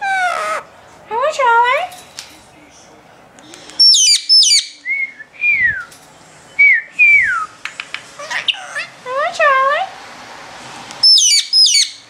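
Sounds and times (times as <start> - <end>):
parakeet chirping and whistling: 3.8 - 4.8, 8.2 - 8.9, 11.0 - 12.0.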